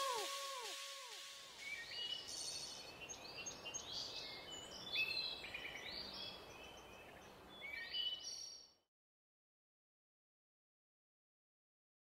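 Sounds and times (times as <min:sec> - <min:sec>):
outdoor ambient hiss: 0:00.0 - 0:08.6
birds chirping and trilling: 0:00.0 - 0:08.7.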